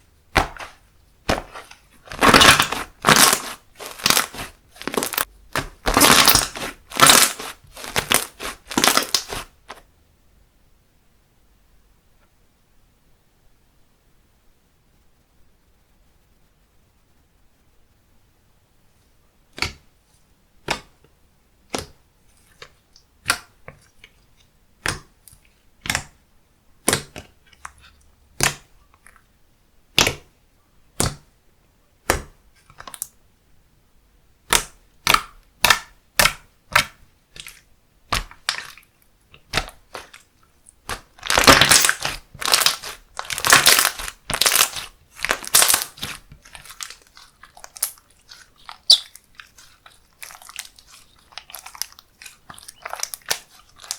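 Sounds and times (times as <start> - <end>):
slime popping and crackling: 0.3 - 9.8, 34.4 - 53.9.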